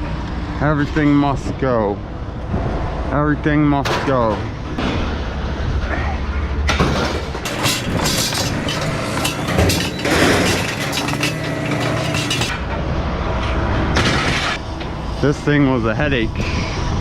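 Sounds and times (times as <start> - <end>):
scrap metal clanging onto pile: 6.8 - 12.6.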